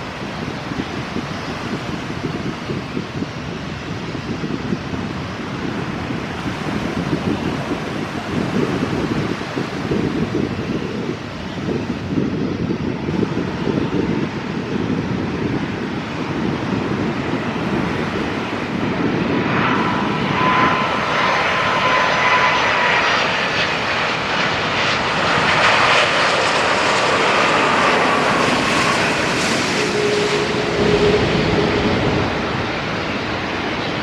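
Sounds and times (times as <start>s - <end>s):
airliner engines passing low: 0.0s - 34.0s.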